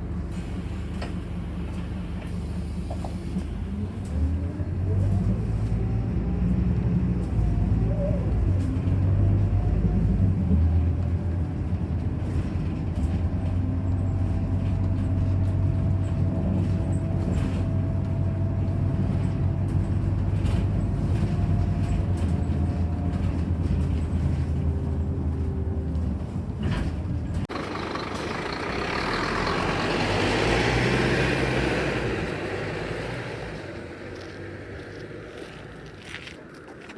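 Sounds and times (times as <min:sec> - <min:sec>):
bus engine drone: 0:00.0 - 0:36.9.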